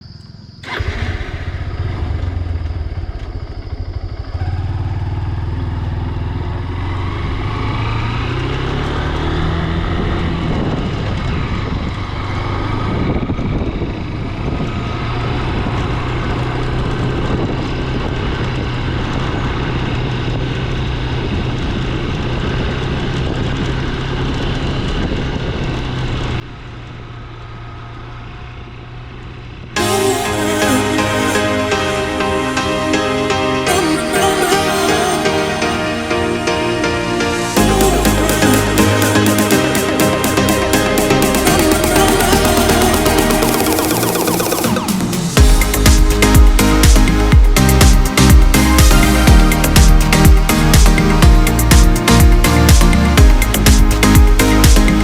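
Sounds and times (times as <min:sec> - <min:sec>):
motorcycle engine running: 0:00.1 - 0:31.4, 0:37.1 - 0:55.0
wind rushing over microphone: 0:06.4 - 0:26.4.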